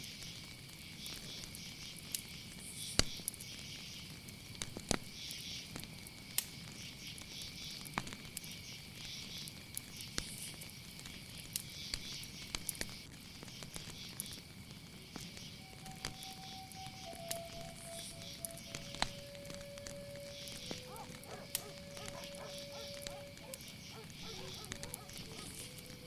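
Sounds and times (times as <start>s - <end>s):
insects chirping: 0.0s - 26.0s
insects trilling: 0.0s - 26.0s
sharp clicks and crackles: 17.0s - 26.0s.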